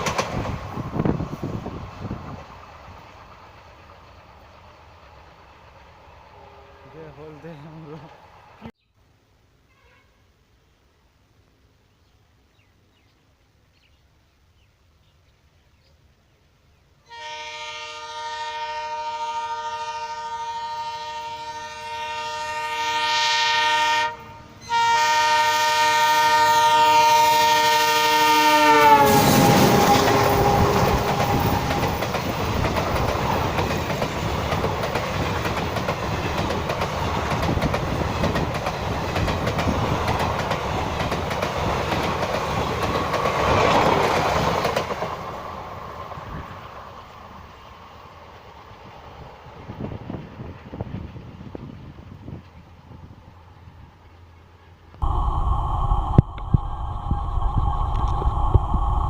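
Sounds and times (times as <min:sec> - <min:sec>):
train wheels clacking on rails: 0:00.0 - 0:01.5, 0:28.9 - 0:45.4
locomotive horn: 0:06.3 - 0:07.0, 0:09.6 - 0:10.3, 0:17.0 - 0:31.7.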